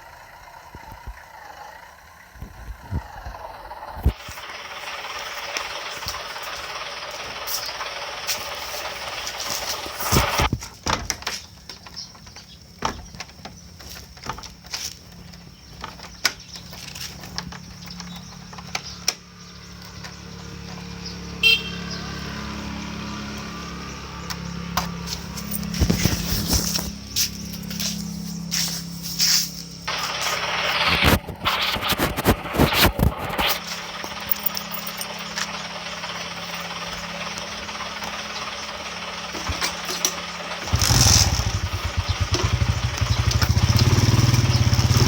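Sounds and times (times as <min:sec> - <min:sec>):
steady engine hum: 0:00.0 - 0:45.0.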